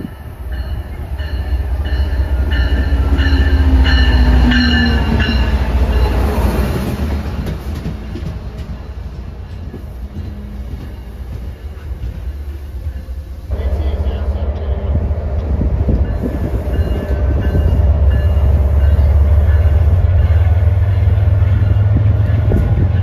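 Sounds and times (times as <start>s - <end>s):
locomotive bell ringing: 0.0s - 6.5s, 12.6s - 23.0s
diesel locomotive passing: 0.0s - 23.0s
train wheels rumbling: 0.0s - 23.0s.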